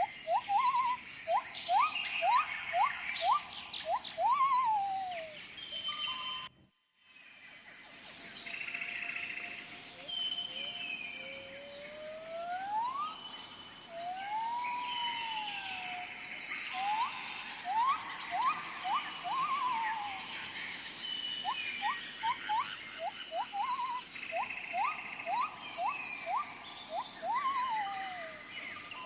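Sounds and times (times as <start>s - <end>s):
high buzz of insects: 0.0s - 5.9s, 7.2s - 29.0s
animal whistling calls: 0.0s - 6.5s, 11.3s - 13.2s, 13.9s - 16.1s, 16.7s - 20.3s, 21.4s - 29.0s.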